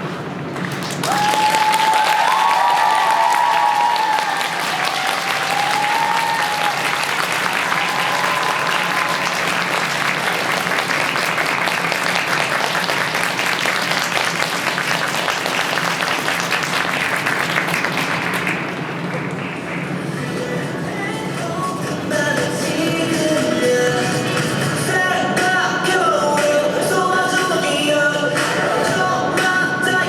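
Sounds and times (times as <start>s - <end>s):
audience applauding: 0.6s - 20.3s.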